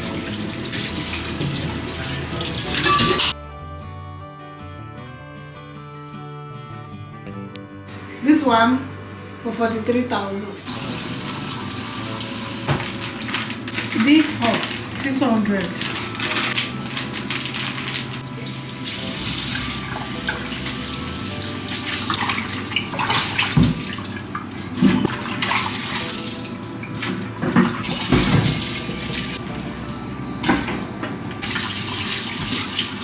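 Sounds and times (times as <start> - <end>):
items clanking in sink: 0.0 - 3.4, 10.7 - 33.0
tap water running into sink: 0.0 - 3.4, 10.6 - 33.0.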